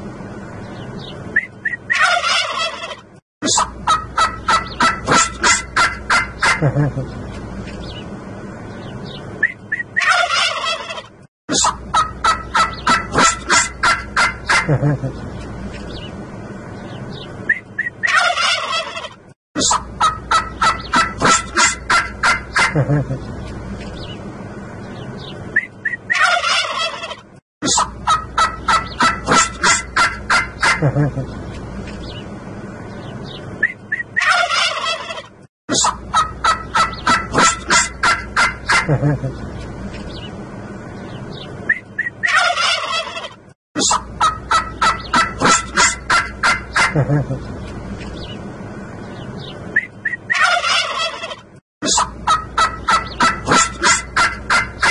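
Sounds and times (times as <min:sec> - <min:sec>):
turkeys gobbling: 0:01.6 - 0:07.2, 0:09.4 - 0:15.2, 0:17.5 - 0:23.3, 0:25.8 - 0:31.3, 0:33.6 - 0:39.5, 0:41.7 - 0:47.5, 0:50.0 - 0:54.9.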